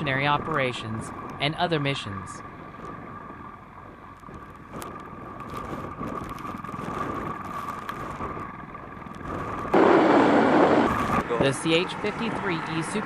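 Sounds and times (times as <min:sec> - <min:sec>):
helicopter turbine and rotor: 0:09.6 - 0:13.0.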